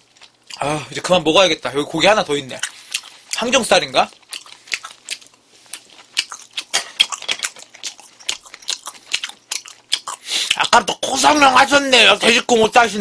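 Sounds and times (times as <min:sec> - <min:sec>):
chewing with mouth clicks: 0:00.0 - 0:00.7, 0:02.5 - 0:11.0.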